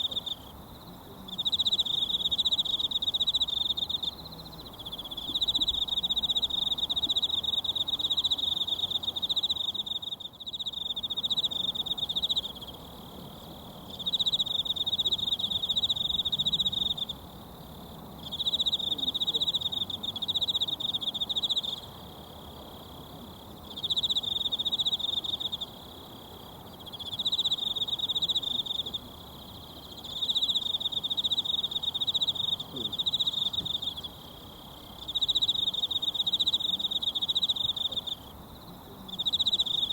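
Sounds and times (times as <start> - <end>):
insect trilling: 1.3 - 12.9, 23.7 - 39.9.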